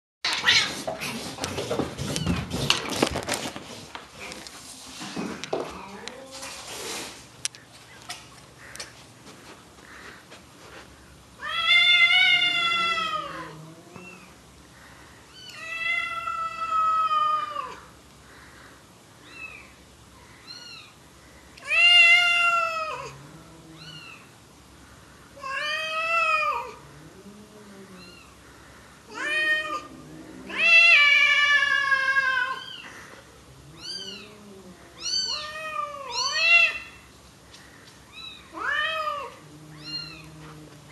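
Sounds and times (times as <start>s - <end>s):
cat meowing loudly: 11.4s - 13.5s, 38.1s - 40.4s.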